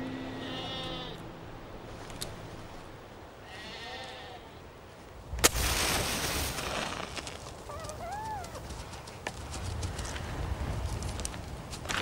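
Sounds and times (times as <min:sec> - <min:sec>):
sheep bleating: 0:00.2 - 0:01.2, 0:03.4 - 0:04.5.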